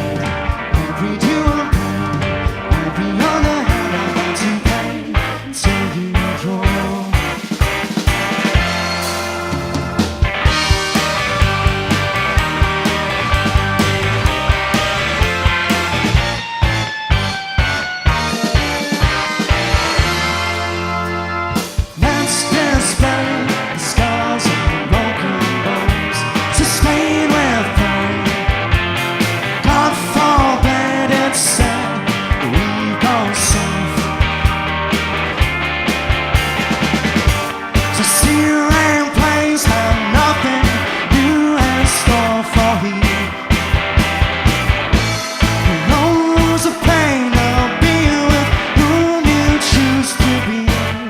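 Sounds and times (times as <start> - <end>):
person singing: 0.0 - 7.4, 21.9 - 28.5, 29.6 - 34.2, 37.9 - 43.4, 45.6 - 51.0
drums: 0.0 - 51.0
electric guitar: 0.0 - 51.0
rock band playing live: 0.0 - 51.0.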